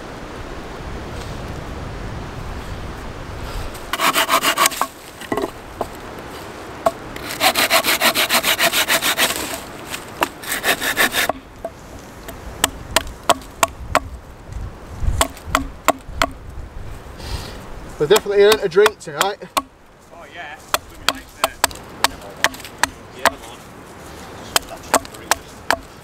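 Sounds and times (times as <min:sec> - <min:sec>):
hand saw rasping through wood: 0:03.9 - 0:04.9, 0:07.2 - 0:09.7, 0:10.3 - 0:11.4
sharp knocks and clicks: 0:15.2 - 0:16.4, 0:24.6 - 0:25.9.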